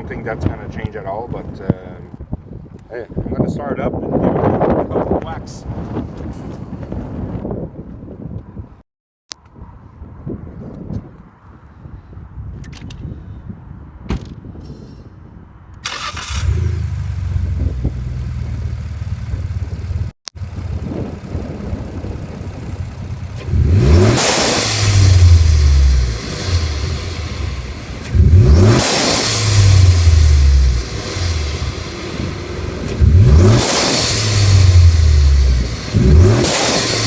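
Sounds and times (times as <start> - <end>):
car engine starting and idling: 15.8 - 37.0
engine revving: 15.8 - 37.0.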